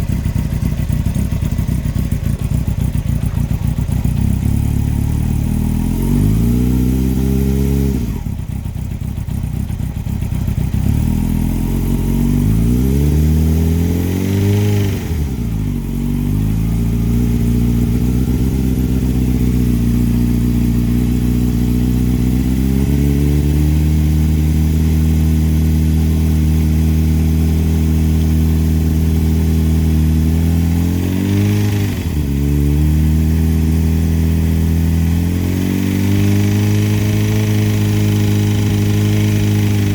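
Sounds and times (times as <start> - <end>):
engine knocking: 0.0 - 6.6, 8.1 - 12.8
motorcycle engine revving: 0.0 - 39.9.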